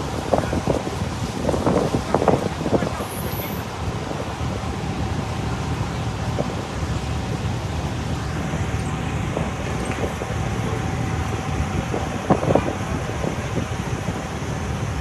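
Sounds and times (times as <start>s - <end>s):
street traffic and engines: 0.0s - 15.0s.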